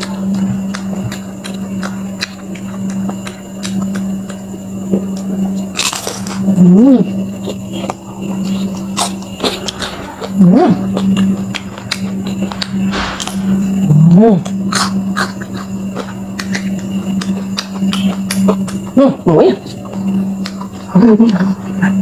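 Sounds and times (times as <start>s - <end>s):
crunchy chewing: 0.0s - 22.0s
steady low hum: 0.0s - 22.0s
short hum rising and falling: 12.4s - 14.8s
loud rush: 12.6s - 14.5s.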